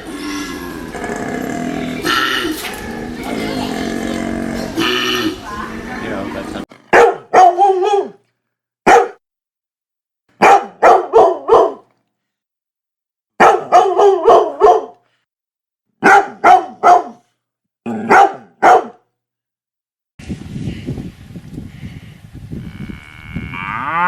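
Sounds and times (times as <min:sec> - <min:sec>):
dog barking: 0:06.9 - 0:08.2, 0:08.8 - 0:09.2, 0:10.4 - 0:11.9, 0:13.4 - 0:15.0, 0:16.0 - 0:17.3, 0:17.9 - 0:19.1.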